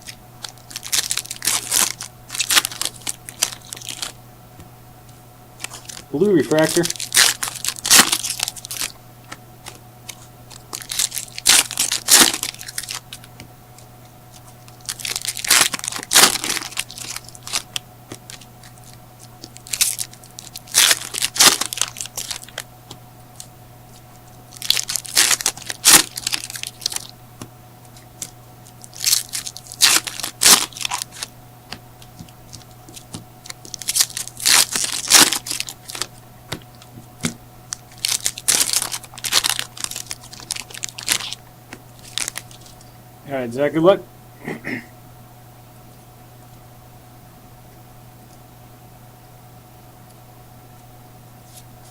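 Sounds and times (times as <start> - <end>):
wrappers torn open and crinkled: 0.0 - 4.2, 5.6 - 9.0, 9.6 - 13.3, 14.3 - 22.6, 24.5 - 27.1, 28.1 - 31.3, 32.0 - 36.9, 37.7 - 41.4, 42.0 - 42.8
faint steady hum: 0.0 - 51.9
cards handled: 5.6 - 42.9.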